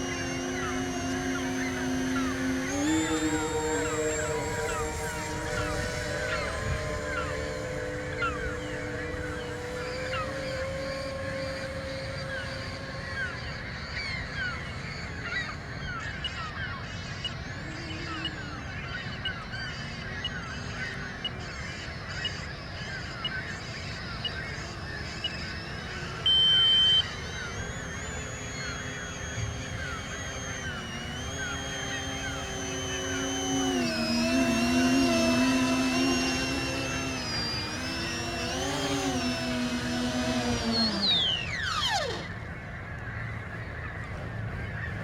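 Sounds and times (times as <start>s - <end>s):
flock of birds calling: 0.0s - 45.0s
faint steady tone: 23.8s - 37.6s
loud steady beep: 26.2s - 27.1s.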